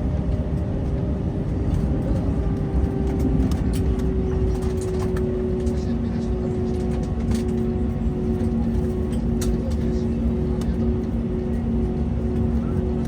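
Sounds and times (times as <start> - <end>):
aircraft cabin rumble: 0.0 - 13.0.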